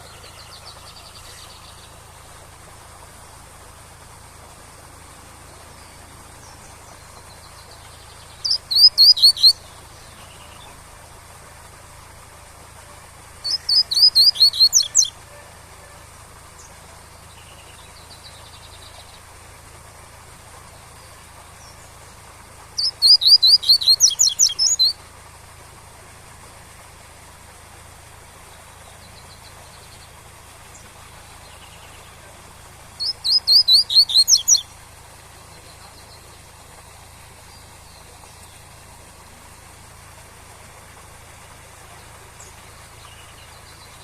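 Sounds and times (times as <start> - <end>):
waterfall hiss: 0.0 - 44.0
bird singing high sweeping notes: 5.5 - 10.8, 13.4 - 15.2, 22.8 - 25.0, 33.0 - 34.7.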